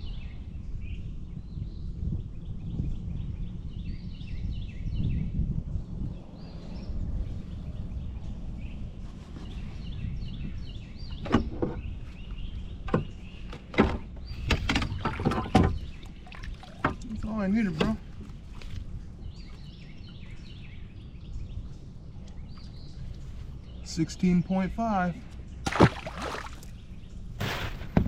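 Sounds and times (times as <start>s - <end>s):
wind on microphone: 0.0s - 23.8s
sharp knocks and clatter: 12.9s - 15.8s
small bird chirping: 18.5s - 23.9s.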